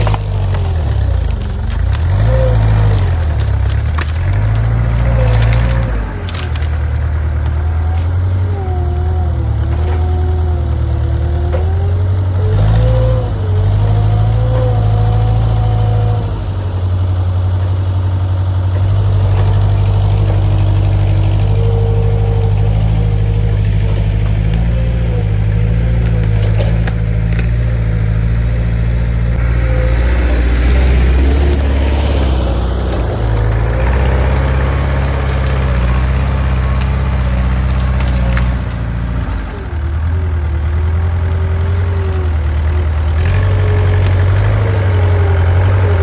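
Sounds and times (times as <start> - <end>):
loader engine running: 0.0 - 46.0
wavering whine: 21.1 - 34.2.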